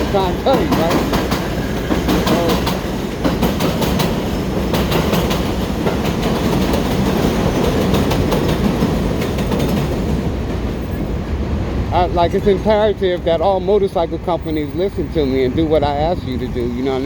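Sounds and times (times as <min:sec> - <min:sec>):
vehicle ride rumble: 0:10.8 - 0:17.0.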